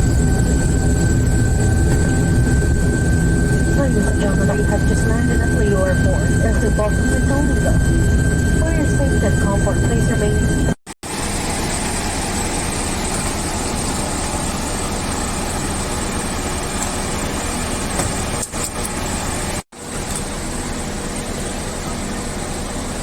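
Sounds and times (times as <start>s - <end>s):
engine rushing hum: 0.0s - 23.0s.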